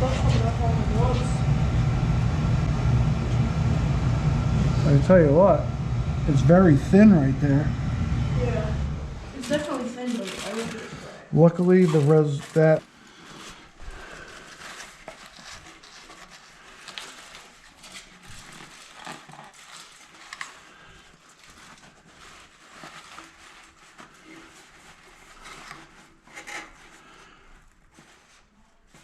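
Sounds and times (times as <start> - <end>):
rustles and clicks of handling tools: 9.4 - 29.0.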